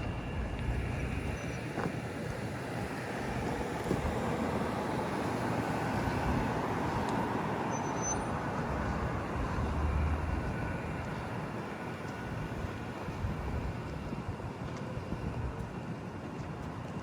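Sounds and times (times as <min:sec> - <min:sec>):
passing traffic noise: 0:00.0 - 0:17.0
vehicle passing with low rumble: 0:08.2 - 0:11.4.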